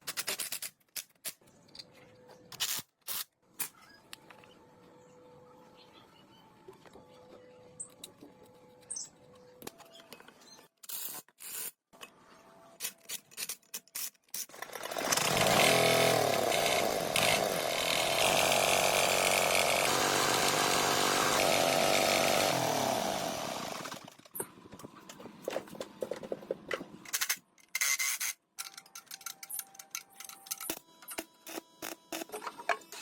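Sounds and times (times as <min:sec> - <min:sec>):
motor-driven machine running: 0:14.6 - 0:24.1.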